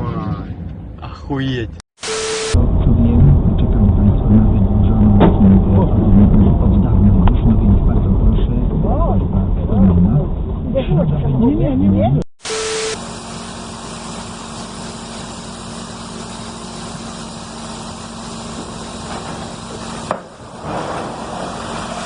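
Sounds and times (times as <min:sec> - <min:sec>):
vehicle engine humming: 0:02.6 - 0:12.3.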